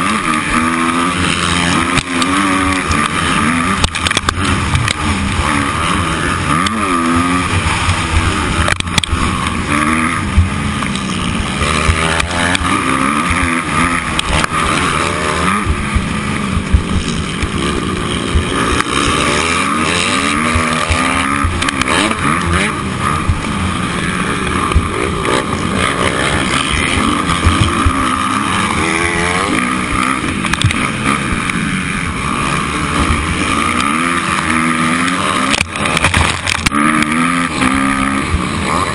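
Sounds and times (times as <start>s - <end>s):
dirt bike engine revving: 0.0s - 38.9s
low rumble: 3.2s - 33.5s.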